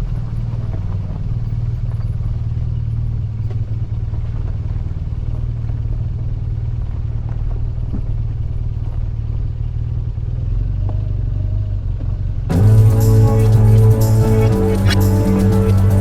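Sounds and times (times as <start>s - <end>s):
music: 12.5s - 16.0s.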